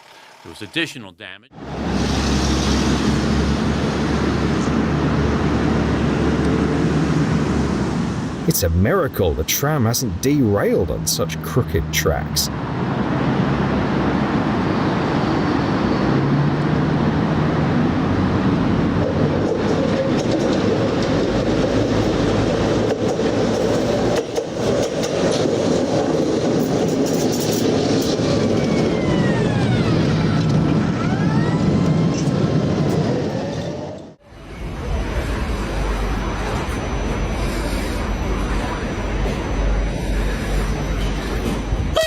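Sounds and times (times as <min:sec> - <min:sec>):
tram wheels rumbling on rails: 0:01.6 - 0:42.0
tram wheel squeals: 0:19.0 - 0:25.8, 0:26.6 - 0:42.0.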